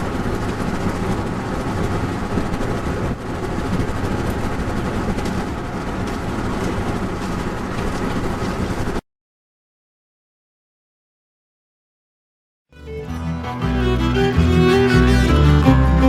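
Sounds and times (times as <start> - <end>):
car road and engine noise: 0.0 - 9.0.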